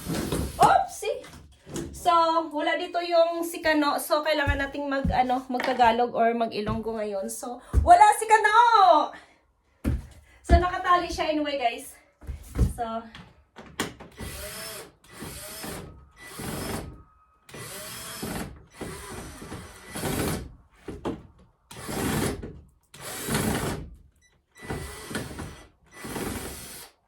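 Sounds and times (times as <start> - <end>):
power drill bursts: 14.2 - 20.5, 23.0 - 23.8, 24.5 - 27.0.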